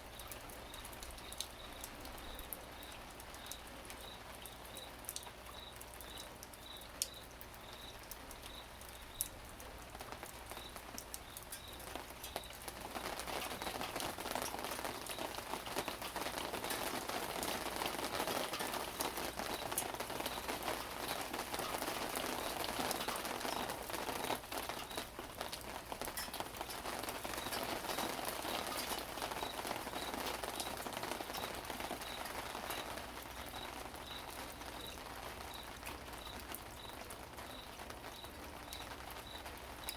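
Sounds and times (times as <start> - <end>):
rain drops ticking: 0.0 - 39.9.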